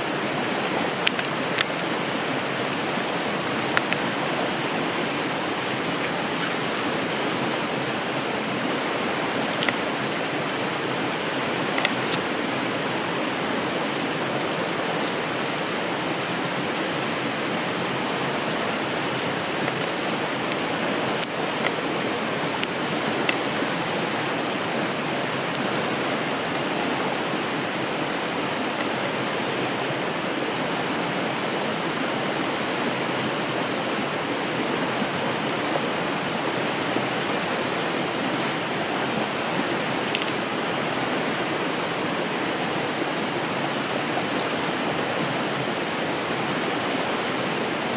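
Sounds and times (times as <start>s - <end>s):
river rushing over rocks: 0.0s - 47.9s
faint clicks: 9.5s - 9.8s, 40.1s - 40.4s.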